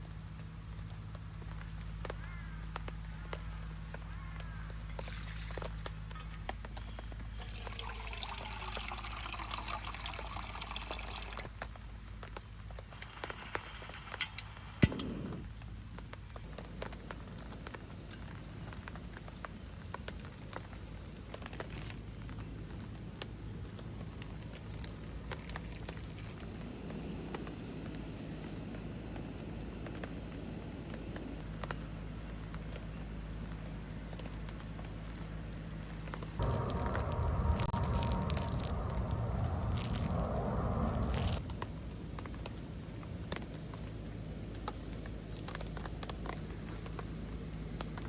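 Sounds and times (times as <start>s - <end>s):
liquid pouring into a pot: 7.4s - 11.5s, 24.7s - 26.4s, 36.4s - 41.4s.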